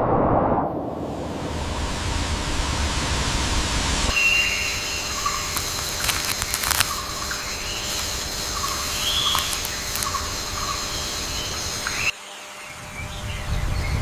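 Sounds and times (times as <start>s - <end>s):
low rumble: 0.0s - 11.4s
insect drone: 0.8s - 14.0s
bird chirps: 4.1s - 14.0s.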